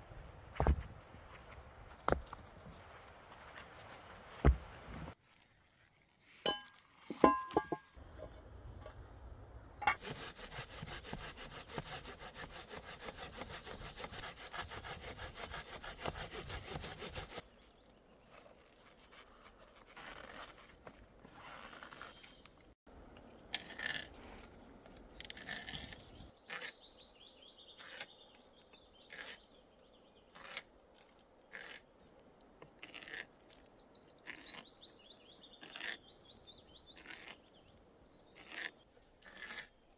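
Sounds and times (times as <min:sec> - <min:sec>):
hand saw cutting wood: 0:10.0 - 0:17.4, 0:38.4 - 0:39.8.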